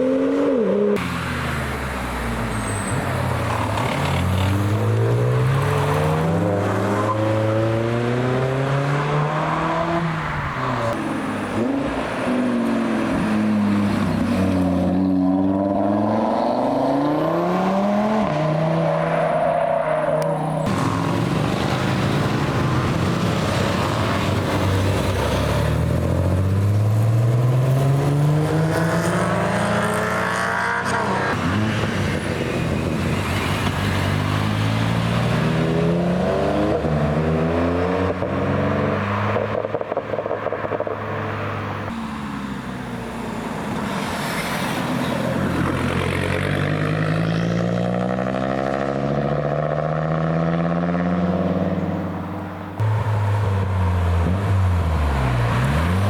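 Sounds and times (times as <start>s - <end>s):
car engines accelerating hard: 0.0s - 56.0s.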